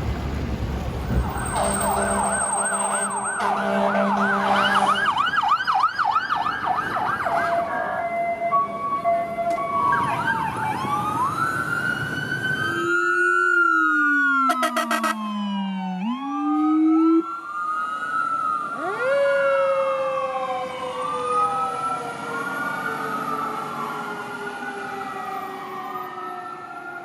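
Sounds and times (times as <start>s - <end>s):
heavy traffic rumble: 0.0s - 27.0s
police sirens wailing: 0.4s - 27.0s
low siren tone: 1.1s - 27.0s.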